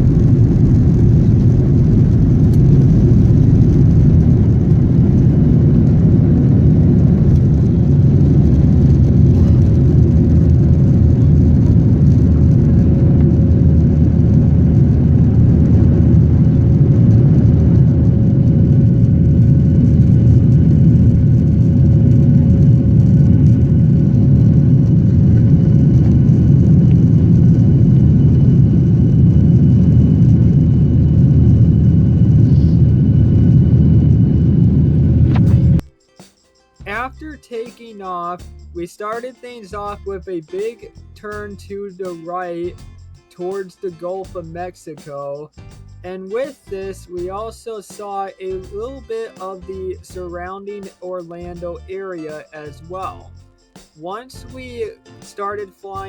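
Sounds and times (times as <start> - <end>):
jet engine rumble in cabin: 0.0 - 35.9.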